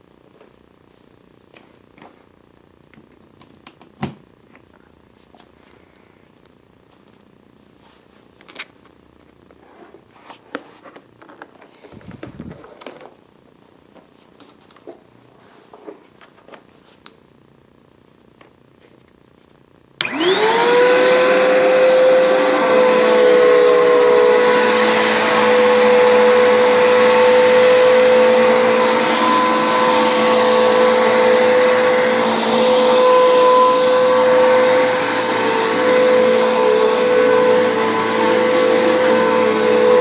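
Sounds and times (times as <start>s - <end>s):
upright vacuum cleaner running: 11.7s - 13.1s, 20.0s - 40.0s
motor rising whine: 20.0s - 40.0s.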